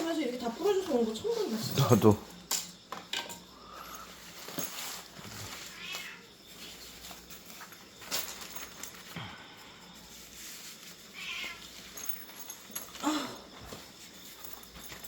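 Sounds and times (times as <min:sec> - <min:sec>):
cat meowing: 0:05.7 - 0:06.3, 0:11.2 - 0:11.7.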